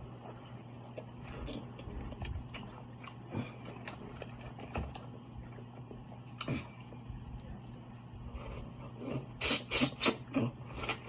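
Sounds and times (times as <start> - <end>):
steady low hum: 0.0 - 11.0
chewing and biting seafood: 0.9 - 7.0.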